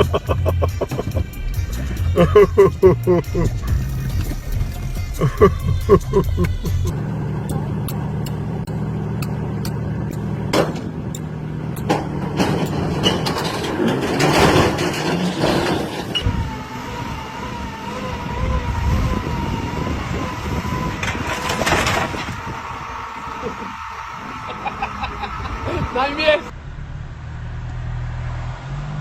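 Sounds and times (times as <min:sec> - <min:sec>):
vehicle engine running: 0:00.0 - 0:12.9.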